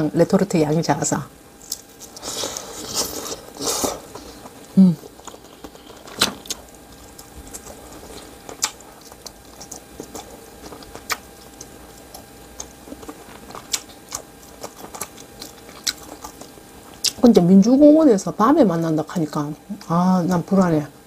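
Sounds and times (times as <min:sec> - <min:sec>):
wet chewing mouth smacks: 0:06.5 - 0:17.2.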